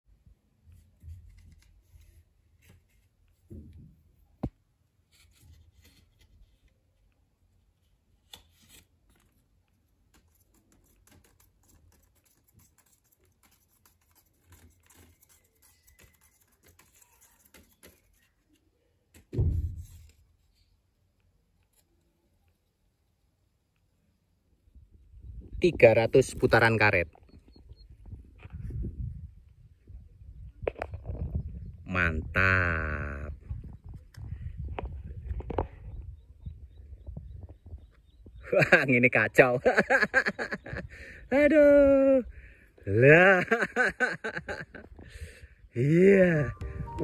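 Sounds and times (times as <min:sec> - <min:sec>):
scratching and rustling: 0:05.0 - 0:20.9
dull low thump: 0:19.4 - 0:19.9.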